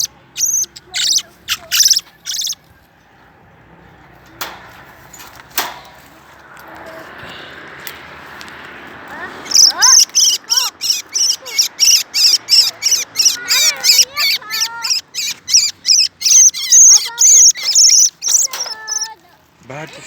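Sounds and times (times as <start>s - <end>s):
whistled bird notes: 0.0s - 2.6s, 9.5s - 19.2s
high sharp bird chirps: 0.0s - 2.8s, 9.4s - 19.2s.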